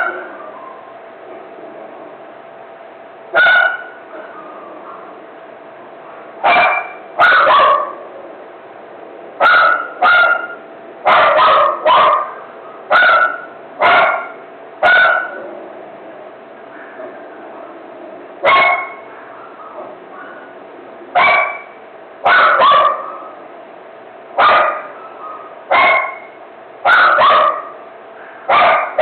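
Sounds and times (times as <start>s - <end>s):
dog barking: 0.0s - 0.9s, 3.4s - 5.1s, 6.1s - 8.0s, 9.4s - 15.4s, 18.4s - 20.6s, 21.2s - 23.4s, 24.4s - 27.8s, 28.4s - 29.0s.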